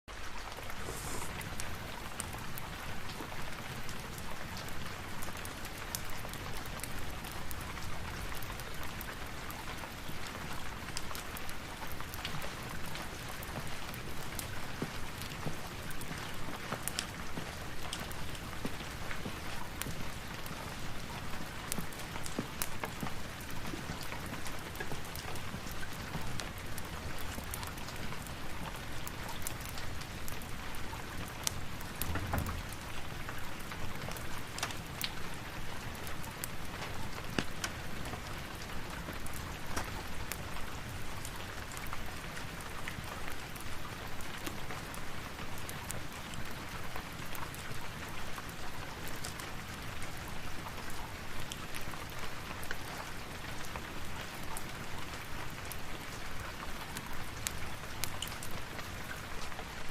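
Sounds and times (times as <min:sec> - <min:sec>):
rain hissing: 0:00.2 - 0:02.2.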